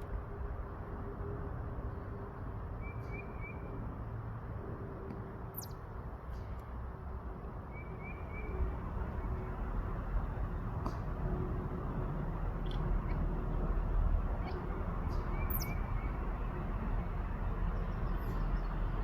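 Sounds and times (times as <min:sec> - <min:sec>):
bird chirping trill: 0:05.6 - 0:05.8, 0:14.4 - 0:16.6
faint steady hum: 0:08.1 - 0:19.0.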